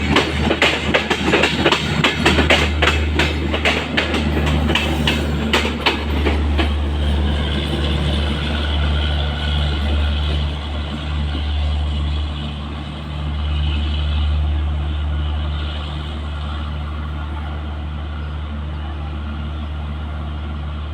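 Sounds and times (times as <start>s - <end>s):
train wheel clicks: 0.0s - 10.5s
train rumbling on rails: 0.0s - 20.9s.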